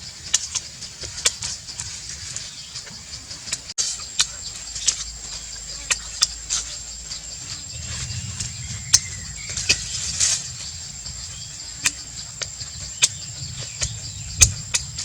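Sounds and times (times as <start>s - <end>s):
high-pitched insect-like drone: 0.0s - 15.0s
low rumble: 4.0s - 15.0s.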